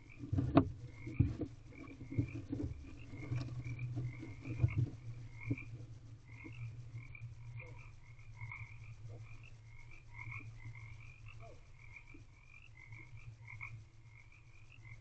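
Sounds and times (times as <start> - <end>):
frogs croaking: 0.0 - 15.0
steady low hum: 0.0 - 15.0.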